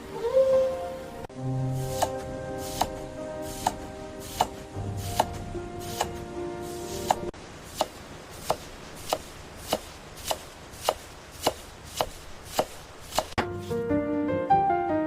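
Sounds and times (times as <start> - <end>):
knife chopping vegetables: 1.8 - 6.2, 6.9 - 13.6.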